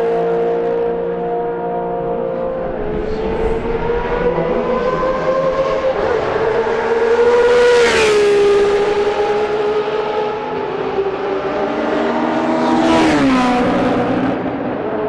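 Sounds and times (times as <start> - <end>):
racing car engines at high revs: 0.0 - 15.0
racing car passing by: 1.8 - 15.0.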